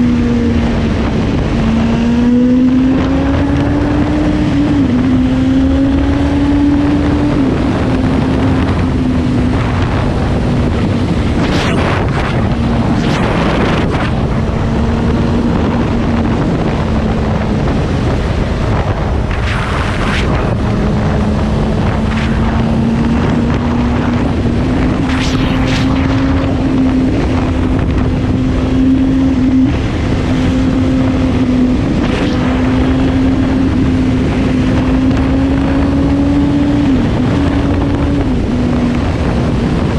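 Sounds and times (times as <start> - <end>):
motorcycle engine cruising: 0.0 - 39.9
wind noise on microphone: 0.0 - 39.9
brief whooshes: 11.3 - 14.2, 25.0 - 26.6.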